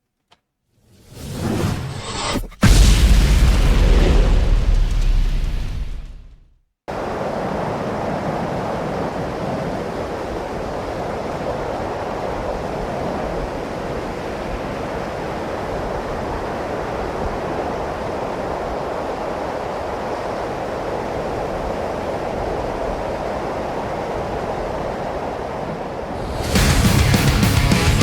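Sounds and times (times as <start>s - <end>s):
steady rushing noise: 25.4s - 28.0s.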